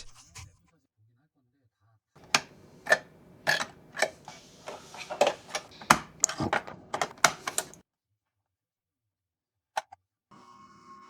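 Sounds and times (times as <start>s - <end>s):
hard parts clicking and tapping: 2.2s - 7.8s.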